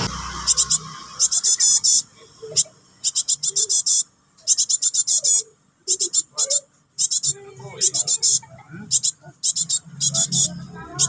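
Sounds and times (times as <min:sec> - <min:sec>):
young bird begging calls: 0:00.0 - 0:10.6.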